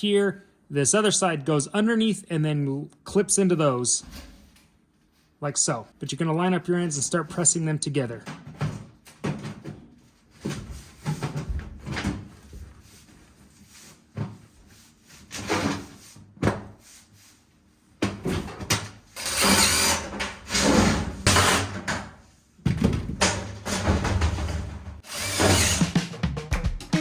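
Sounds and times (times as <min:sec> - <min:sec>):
rattling scraping metal: 0:19.2 - 0:21.8, 0:23.6 - 0:26.0.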